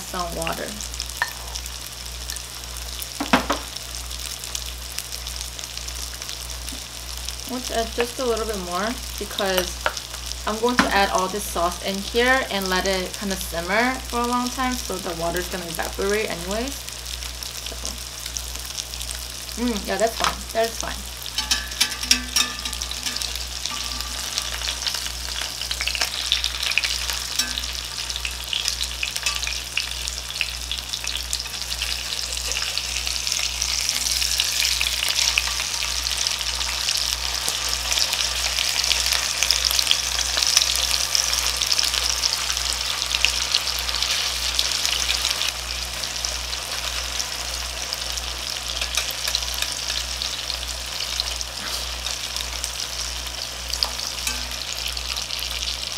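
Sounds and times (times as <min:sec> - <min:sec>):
tofu sizzling in oil: 0:00.0 - 0:55.9
metal fork turning slices: 0:21.3 - 0:25.0.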